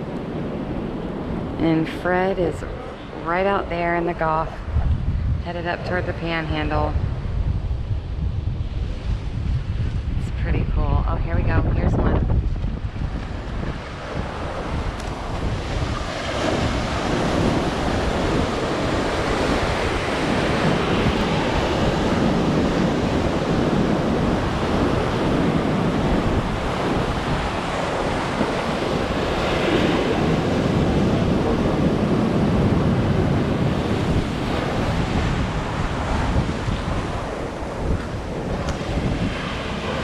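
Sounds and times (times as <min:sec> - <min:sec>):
wind buffeting microphone: 0:00.0 - 0:40.0
surf breaking on beach: 0:11.5 - 0:40.0.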